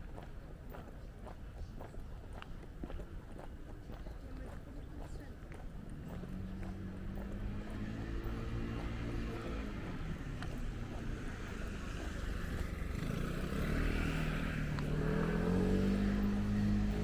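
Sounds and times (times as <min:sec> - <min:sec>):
vehicle engine accelerating: 0:05.5 - 0:17.0.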